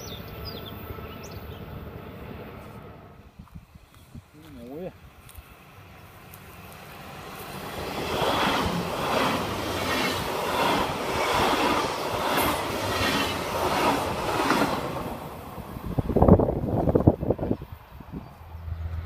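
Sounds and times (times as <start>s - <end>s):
train passing on rails: 0.0s - 19.0s
wheels beating on rails: 6.2s - 17.6s.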